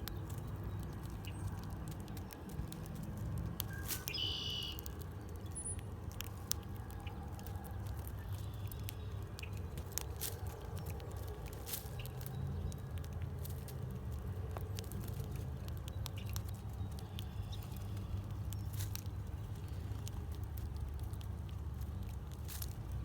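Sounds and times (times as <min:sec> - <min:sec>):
birds pecking and cracking seed: 0:00.0 - 0:23.0
steady low rumble: 0:04.8 - 0:23.0.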